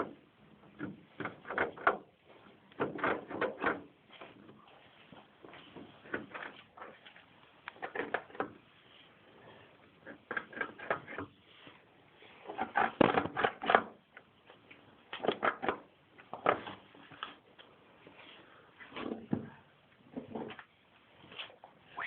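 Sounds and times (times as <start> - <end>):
scratching and clicking behind metal: 0.0 - 4.5, 5.7 - 8.6, 10.0 - 11.3.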